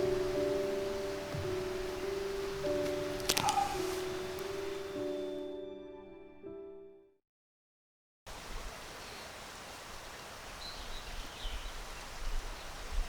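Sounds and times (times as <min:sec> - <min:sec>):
steady hiss: 0:00.0 - 0:05.6
bird chirps: 0:02.9 - 0:05.4
wind rumbling on microphone: 0:10.7 - 0:13.0.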